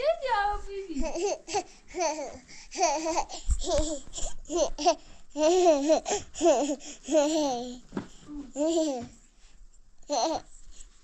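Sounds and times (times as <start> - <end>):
child babbling and laughing: 0.9 - 9.1, 10.1 - 10.5.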